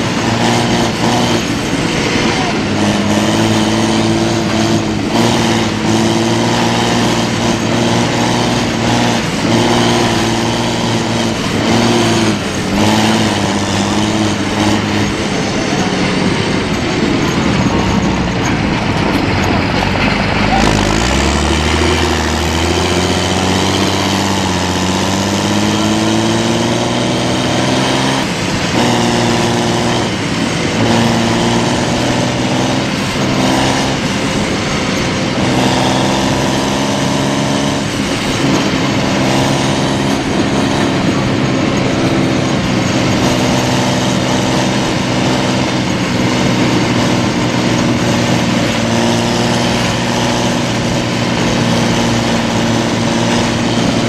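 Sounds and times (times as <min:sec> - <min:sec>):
heavy diesel engines running hard: 0:00.0 - 0:54.0.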